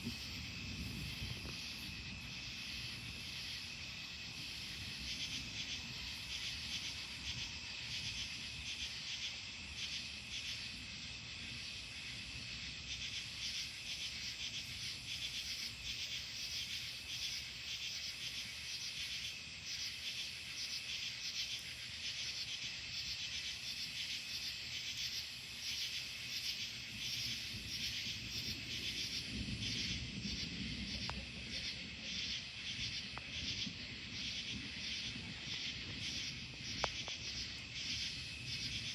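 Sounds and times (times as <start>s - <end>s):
crickets and insects trilling: 0.0s - 38.9s
distant thunder rumble: 27.3s - 38.9s.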